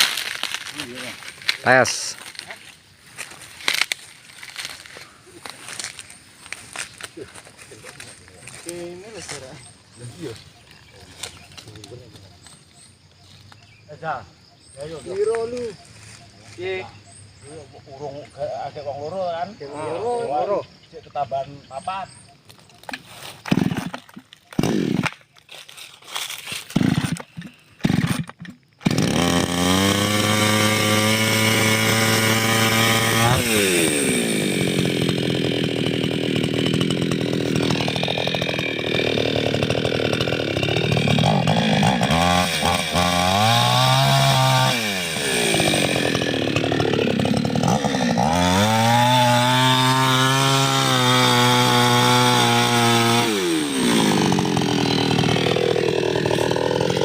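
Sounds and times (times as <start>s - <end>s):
chainsaw running at high speed: 23.5s - 24.0s, 24.6s - 25.2s, 26.7s - 57.0s.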